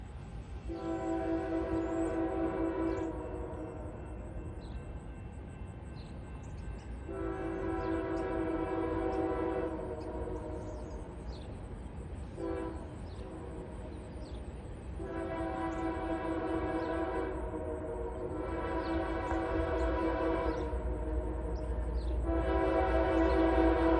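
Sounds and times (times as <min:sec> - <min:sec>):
train rumbling: 0:00.0 - 0:23.9
train air horn blasts: 0:00.7 - 0:04.4, 0:07.0 - 0:11.2, 0:12.3 - 0:14.2, 0:14.9 - 0:23.9.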